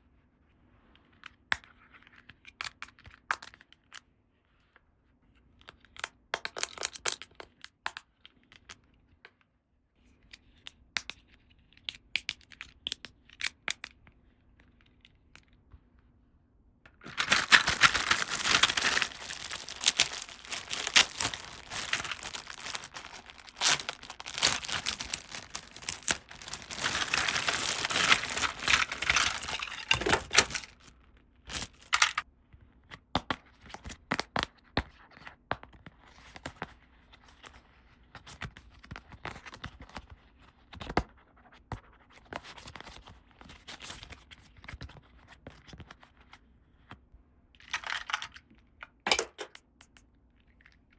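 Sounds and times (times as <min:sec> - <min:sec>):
packaging crinkling and tearing: 0:17.0 - 0:30.9, 0:31.5 - 0:32.2
packaging clicks and rustles: 0:17.0 - 0:32.2, 0:47.6 - 0:48.4.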